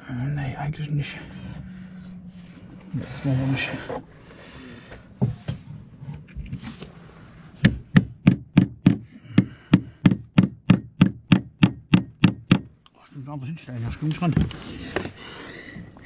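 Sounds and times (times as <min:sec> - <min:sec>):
hammer striking nail: 0:07.6 - 0:12.7.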